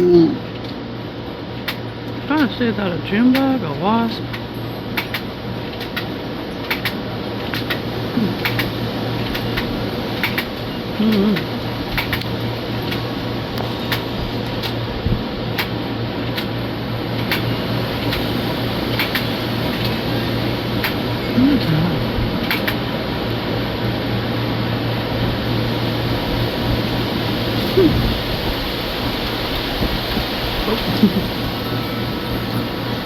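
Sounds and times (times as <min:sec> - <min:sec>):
steady mechanical hum: 0:00.0 - 0:33.0
sharp clicks: 0:01.6 - 0:01.8, 0:04.3 - 0:14.8, 0:15.6 - 0:16.5, 0:17.2 - 0:18.3, 0:18.9 - 0:20.0, 0:20.8 - 0:21.0, 0:22.4 - 0:22.8.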